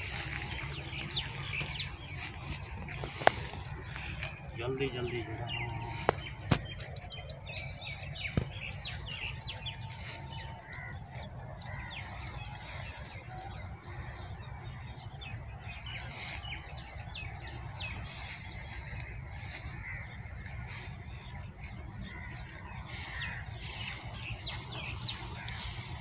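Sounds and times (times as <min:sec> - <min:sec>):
grass rustling: 0:00.0 - 0:26.0
small birds chirping: 0:00.0 - 0:26.0
steady low rumble: 0:00.0 - 0:26.0.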